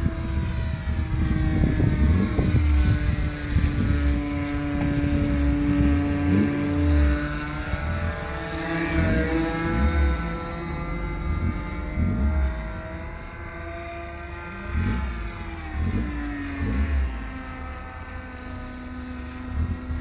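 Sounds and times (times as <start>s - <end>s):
wind buffeting microphone: 0.0s - 13.1s
model airplane engine running: 0.0s - 20.0s.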